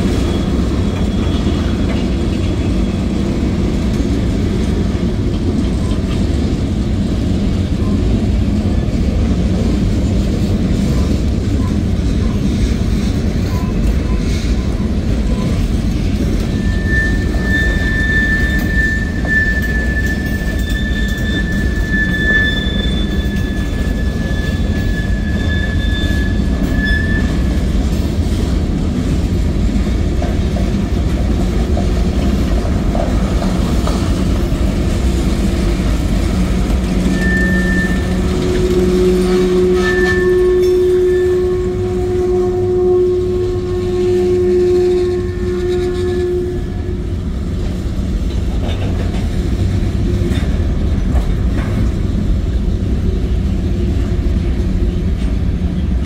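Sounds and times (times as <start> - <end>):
freight train rumbling past: 0.0 - 56.0
high wheel squeal: 0.1 - 3.2, 13.3 - 27.8, 36.8 - 42.7.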